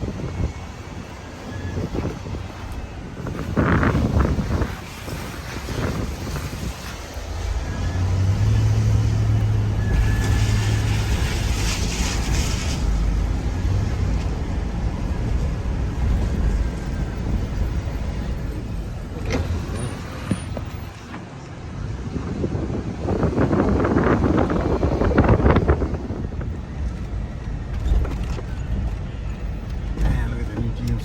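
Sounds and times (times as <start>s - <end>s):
vehicle engine and road rumble: 0.0s - 31.0s
brief hissing wash: 9.8s - 13.2s.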